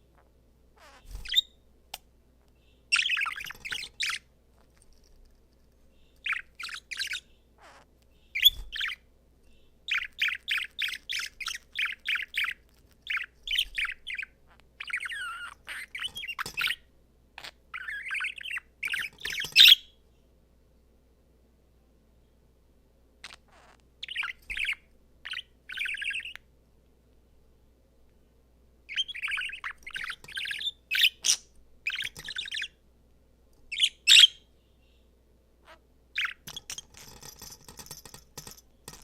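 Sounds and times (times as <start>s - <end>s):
budgerigar chirping and warbling: 0.2s - 1.6s, 2.9s - 4.2s, 6.2s - 9.0s, 9.9s - 16.8s, 17.4s - 19.9s, 23.2s - 26.4s, 28.9s - 32.8s, 33.7s - 34.4s, 35.6s - 36.8s.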